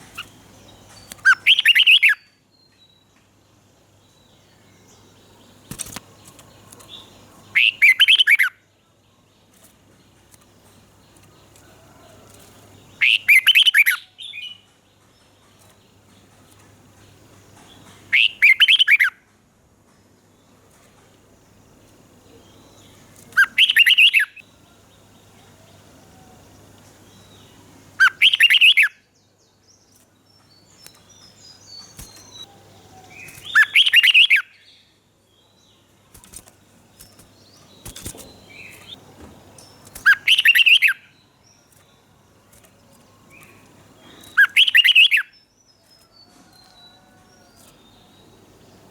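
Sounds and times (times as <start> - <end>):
bulbul singing: 0.0 - 3.2, 4.0 - 8.7, 10.0 - 19.2, 21.4 - 48.9
faint bird chirps: 22.2 - 39.0, 39.6 - 48.9.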